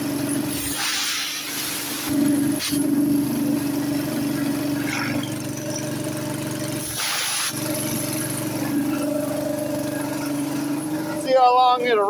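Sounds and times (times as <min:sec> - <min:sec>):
small gasoline engine running: 0:00.0 - 0:12.0
short hiss: 0:00.6 - 0:02.8, 0:06.8 - 0:07.6.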